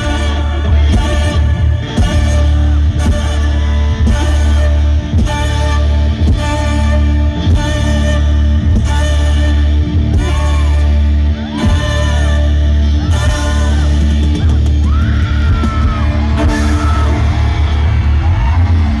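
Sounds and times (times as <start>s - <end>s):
person singing: 0.0s - 19.0s
rock band music: 0.0s - 19.0s.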